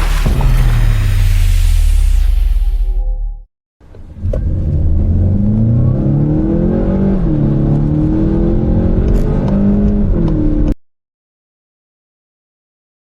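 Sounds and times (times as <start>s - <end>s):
car engine accelerating: 3.9s - 10.8s.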